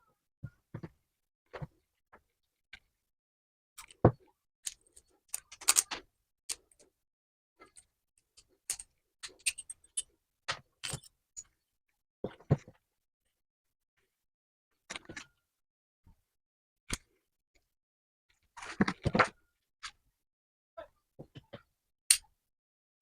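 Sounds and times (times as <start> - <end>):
tools clicking and knocking: 4.7 - 6.8, 7.6 - 11.1.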